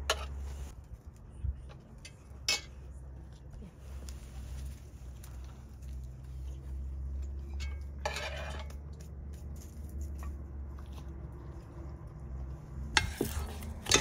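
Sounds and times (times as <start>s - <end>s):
dishes and cutlery clinking: 13.0s - 14.0s.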